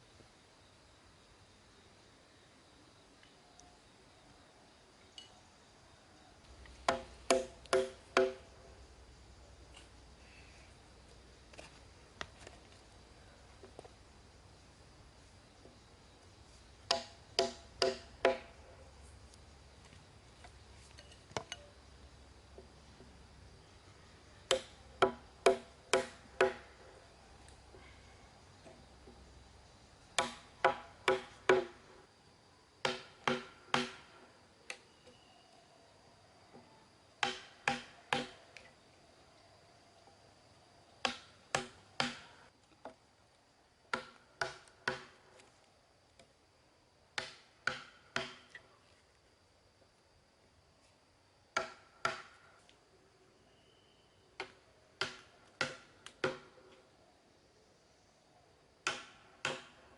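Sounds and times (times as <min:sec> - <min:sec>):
tool striking wood: 0:06.8 - 0:08.4, 0:16.9 - 0:18.5, 0:24.5 - 0:26.7, 0:30.2 - 0:31.8, 0:32.8 - 0:34.1, 0:37.2 - 0:38.4, 0:41.0 - 0:42.3, 0:43.9 - 0:45.1, 0:47.2 - 0:48.5, 0:51.6 - 0:52.3, 0:54.4 - 0:56.5, 0:58.8 - 0:59.8.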